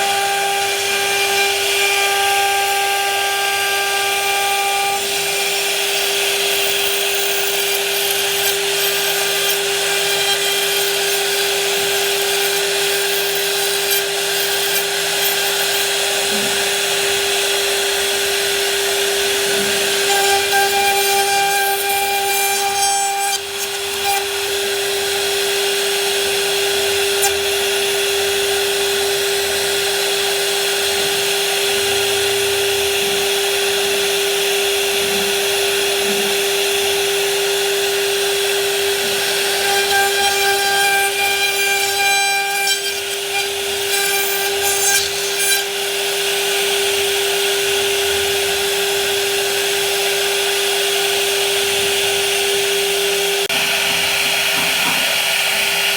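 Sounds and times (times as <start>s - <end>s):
power tool motor whine: 0.0s - 55.9s
rasping of wood being cut: 3.6s - 17.0s, 19.4s - 24.8s, 38.9s - 45.9s.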